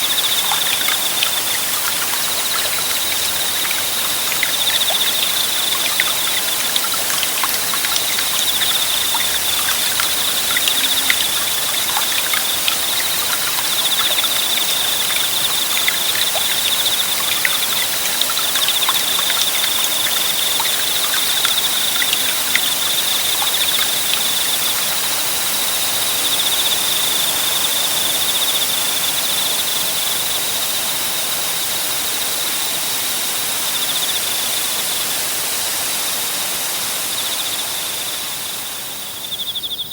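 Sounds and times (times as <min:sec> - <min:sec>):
insect trilling: 0:00.0 - 0:25.2
forest stream babbling: 0:00.0 - 0:27.8.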